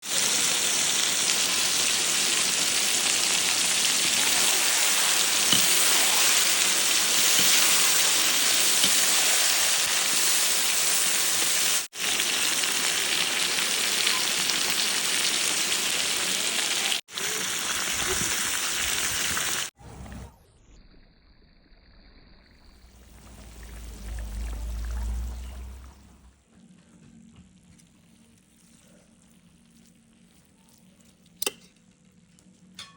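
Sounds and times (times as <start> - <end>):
food sizzling in hot oil: 0.0 - 19.8.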